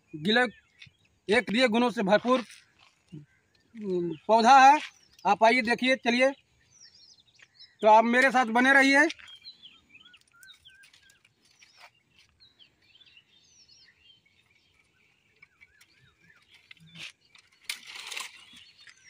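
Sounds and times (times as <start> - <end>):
small birds chirping: 0.0 - 19.0
brief rustle: 15.4 - 19.0.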